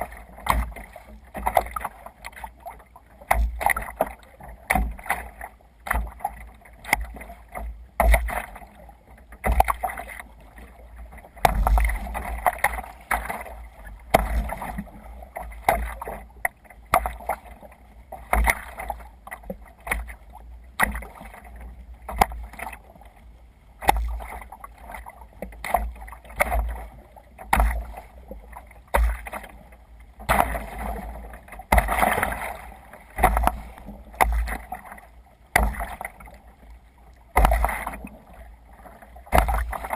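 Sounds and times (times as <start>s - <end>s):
water splashing against kayak hull: 0.0s - 39.9s
low thump: 11.4s - 12.2s.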